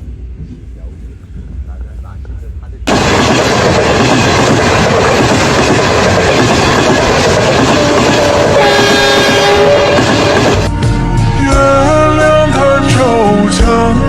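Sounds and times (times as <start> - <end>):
train wheels clattering on track: 2.9 - 10.7.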